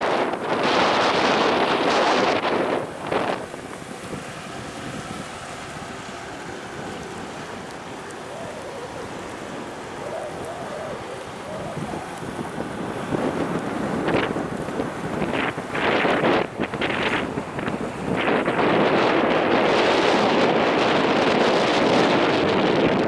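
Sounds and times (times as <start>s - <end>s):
sea wash: 0.0s - 23.0s
wind buffeting microphone: 0.0s - 23.0s
faint wavering tones: 2.8s - 14.4s.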